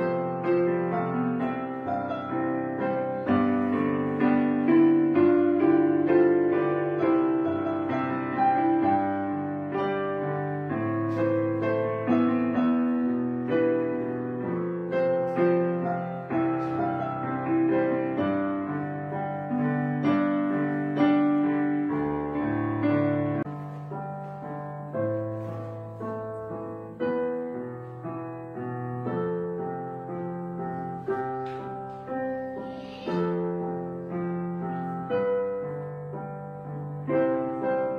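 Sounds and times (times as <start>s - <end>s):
gentle piano music: 0.0s - 37.9s.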